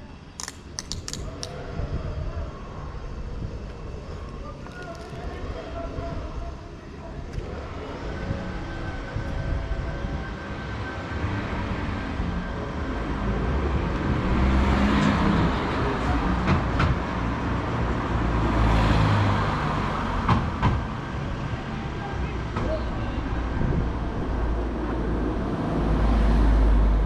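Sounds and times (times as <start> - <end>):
sharp clicks: 0.4 - 1.6
rushing wind noise: 0.6 - 21.6, 22.4 - 26.5.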